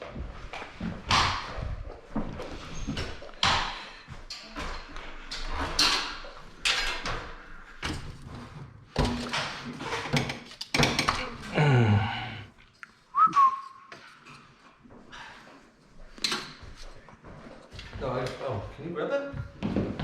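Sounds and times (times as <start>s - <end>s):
metal scaffolding knocks and clatters: 2.5s - 11.4s.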